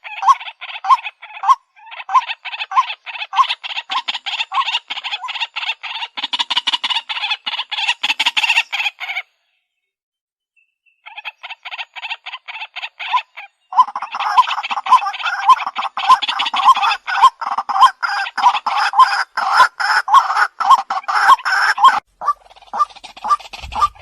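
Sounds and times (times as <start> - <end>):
waterhen harsh croaking calls: 0.0 - 9.3, 11.0 - 24.0.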